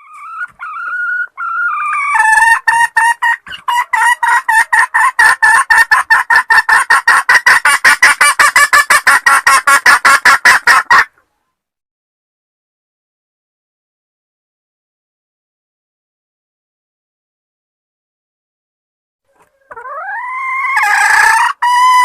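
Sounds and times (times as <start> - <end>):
junglefowl hen clucking: 0.0 - 11.4, 19.3 - 22.0.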